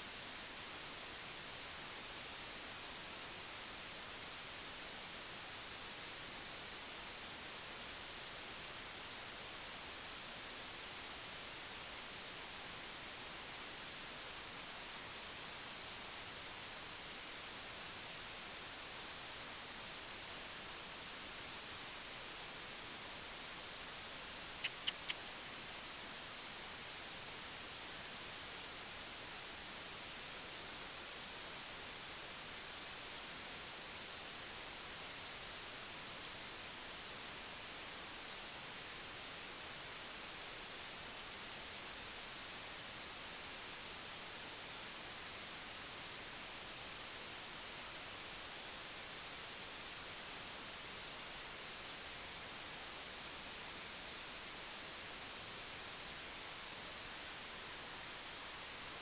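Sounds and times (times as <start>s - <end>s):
steady hiss: 0.0s - 59.0s.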